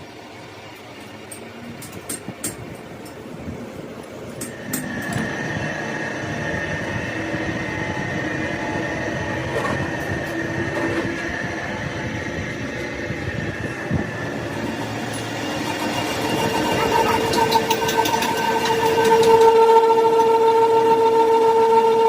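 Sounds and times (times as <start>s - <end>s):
metalworking machine rumble: 0.6s - 21.9s
high-pitched machine whine: 4.4s - 22.0s.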